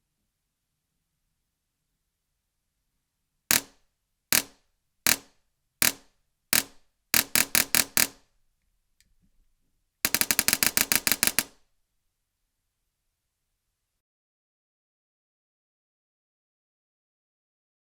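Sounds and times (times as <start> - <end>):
airsoft gun firing: 3.5 - 3.8, 4.4 - 8.2, 10.1 - 11.6.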